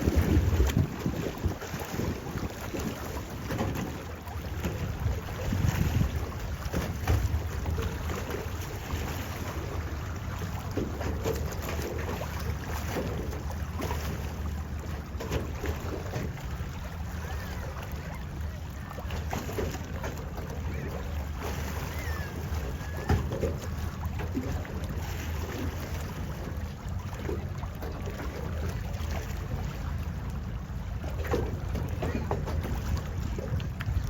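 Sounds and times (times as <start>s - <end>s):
wind on microphone: 0.0s - 3.9s, 4.6s - 8.1s, 32.0s - 34.0s
low rumble of ship engines: 0.0s - 34.0s.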